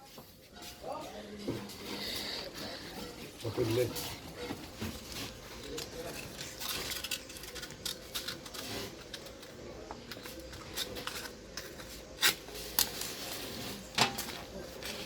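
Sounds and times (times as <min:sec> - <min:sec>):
metal tools clicking and tapping: 0:03.9 - 0:13.2.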